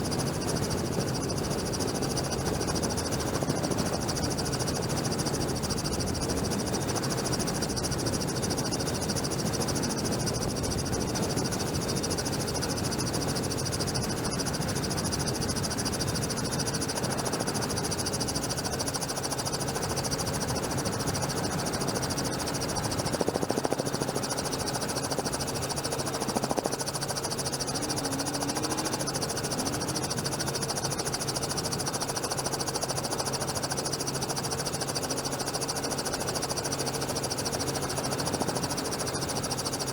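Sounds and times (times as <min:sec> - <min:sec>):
helicopter drone with hiss: 0:00.0 - 0:39.9.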